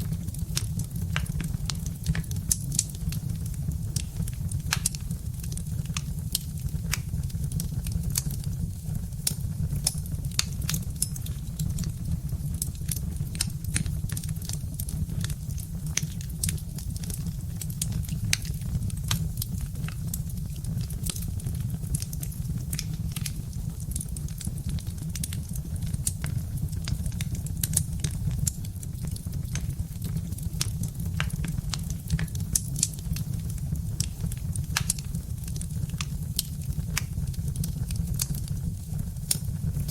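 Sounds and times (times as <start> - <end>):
fire burning with crackles: 0.0 - 39.9
logs crackling and popping: 0.0 - 39.9.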